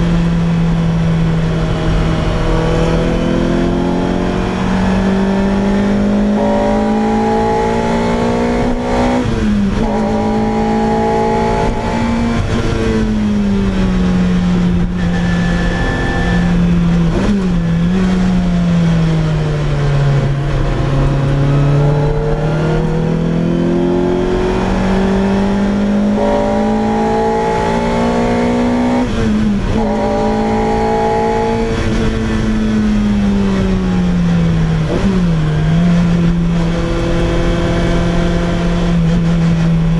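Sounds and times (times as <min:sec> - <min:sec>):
car engine and exhaust: 0:00.0 - 0:39.9.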